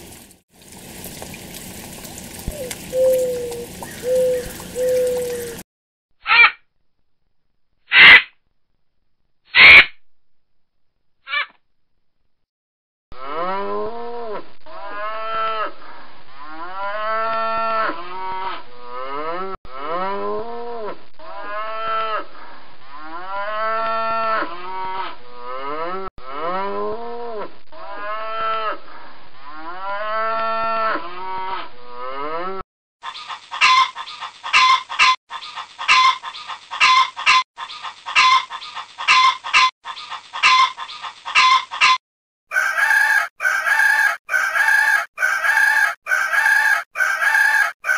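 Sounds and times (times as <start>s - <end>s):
another animal calling: 2.5s - 5.6s
short sharp animal calls: 7.9s - 8.4s, 9.5s - 10.0s, 11.3s - 11.6s
cattle mooing: 13.2s - 15.8s, 16.4s - 22.3s, 22.9s - 28.8s, 29.5s - 32.6s.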